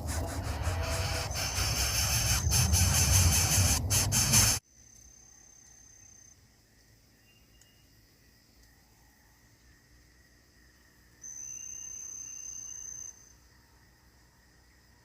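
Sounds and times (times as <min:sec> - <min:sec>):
insect trilling: 0:00.0 - 0:04.6
loud rustling and scraping: 0:00.0 - 0:04.6.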